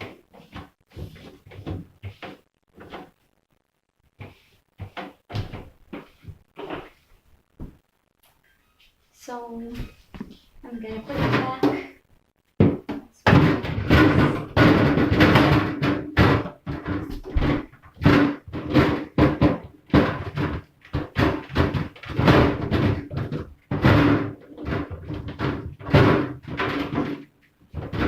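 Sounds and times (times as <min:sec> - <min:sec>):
plastic fridge parts clattering: 0:12.6 - 0:28.0.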